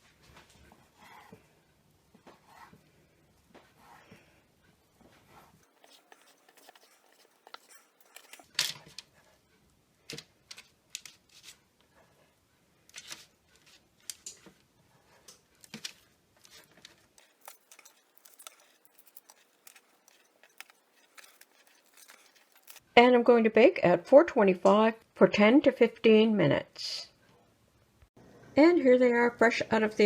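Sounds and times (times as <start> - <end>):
knife cutting dough: 5.4 - 8.5
paper crinkling: 5.6 - 8.5, 16.5 - 22.8.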